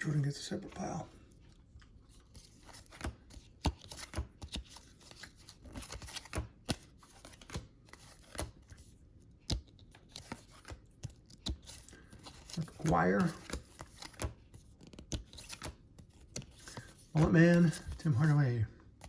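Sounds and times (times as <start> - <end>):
cards tapping and sliding on table: 9.5 - 18.3.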